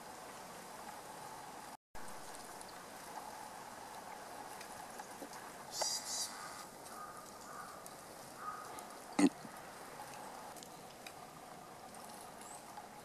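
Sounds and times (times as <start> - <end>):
steady outdoor hiss: 0.0 - 13.0
bird giving buzzy calls: 5.7 - 7.7.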